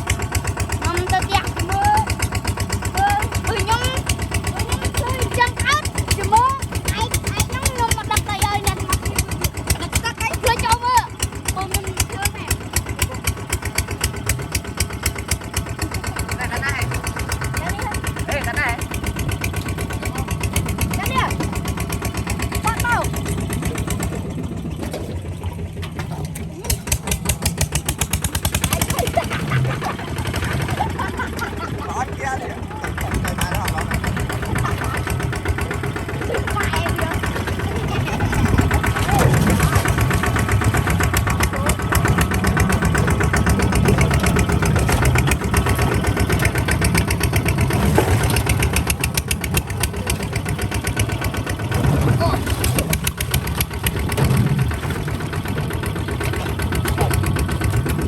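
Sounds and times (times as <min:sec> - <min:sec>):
diesel engine thudding: 0:00.0 - 0:58.0.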